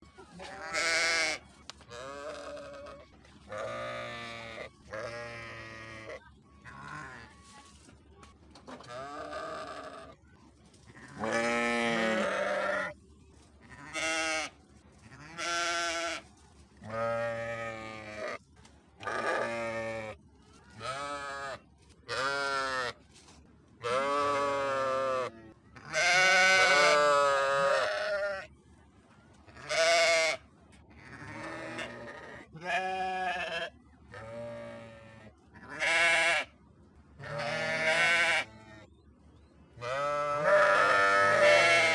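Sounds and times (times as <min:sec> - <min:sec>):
sheep bleating: 0:00.5 - 0:07.3, 0:11.1 - 0:13.0, 0:23.8 - 0:28.5, 0:29.6 - 0:30.4, 0:31.0 - 0:36.5, 0:37.2 - 0:38.6, 0:39.8 - 0:41.9.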